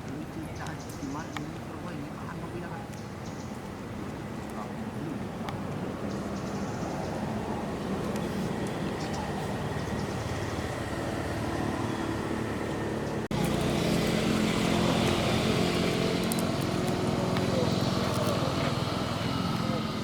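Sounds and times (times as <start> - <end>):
motor droning: 7.6 - 20.0.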